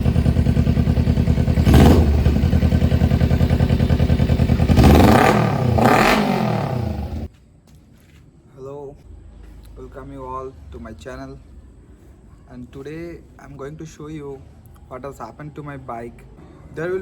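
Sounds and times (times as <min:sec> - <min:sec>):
motorcycle engine idling and revving: 0:00.0 - 0:07.3.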